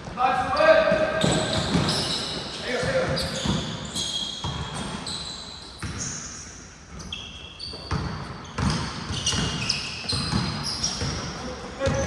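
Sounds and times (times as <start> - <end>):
sneakers squeaking: 0.0 - 12.0
basketball bouncing: 0.9 - 5.2, 5.8 - 6.1, 7.8 - 12.0.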